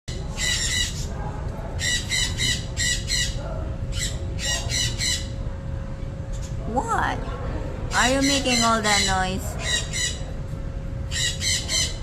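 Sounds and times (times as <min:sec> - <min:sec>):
parrot squawking: 0:00.4 - 0:01.1, 0:01.8 - 0:05.4, 0:07.9 - 0:10.3, 0:11.1 - 0:12.0.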